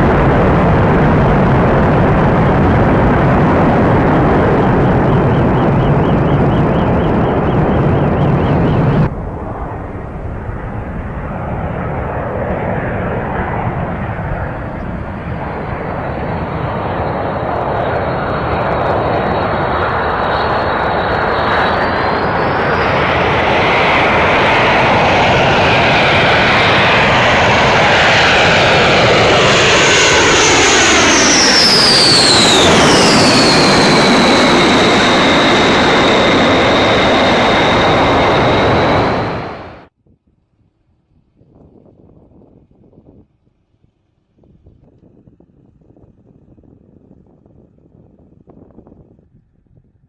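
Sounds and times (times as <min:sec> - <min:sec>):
high jet whine dropping in pitch: 0:00.0 - 0:39.9
jet engines roaring: 0:00.0 - 0:39.9.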